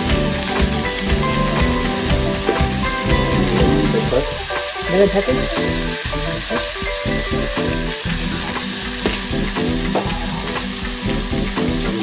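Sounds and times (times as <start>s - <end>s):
sprouts sizzling in butter: 0.0s - 12.0s.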